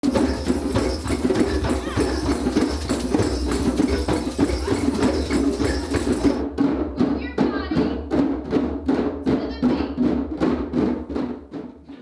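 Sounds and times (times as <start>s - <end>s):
hand drums playing: 0.0s - 7.0s.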